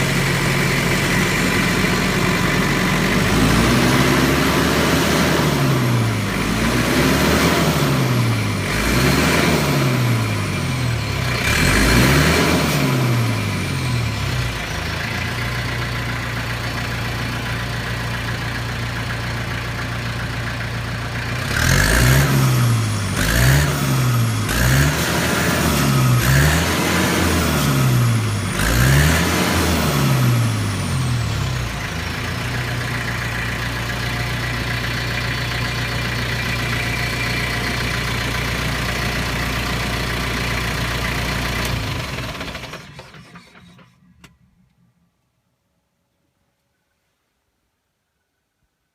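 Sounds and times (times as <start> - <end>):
tractor engine idling: 0.0 - 6.8, 13.1 - 22.0, 30.0 - 45.1
tractor engine revving: 0.0 - 44.3.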